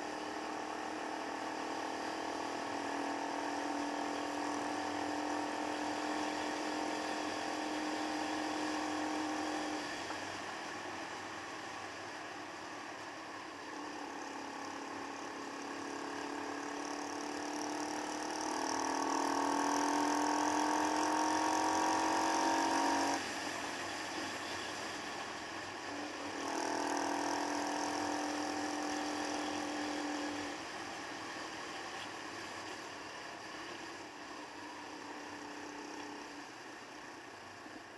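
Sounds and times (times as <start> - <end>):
motorcycle engine revving: 0.0 - 10.1, 13.8 - 23.2, 25.8 - 30.8
road noise: 0.0 - 37.9.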